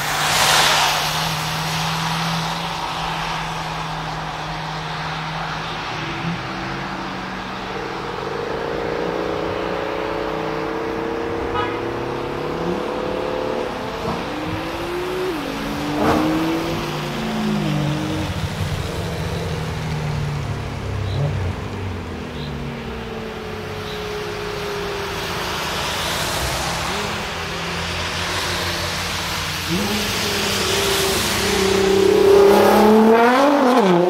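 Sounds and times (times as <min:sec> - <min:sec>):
tyre hiss on wet road: 0:00.0 - 0:06.9, 0:23.6 - 0:33.2
car engine accelerating hard: 0:00.0 - 0:34.0.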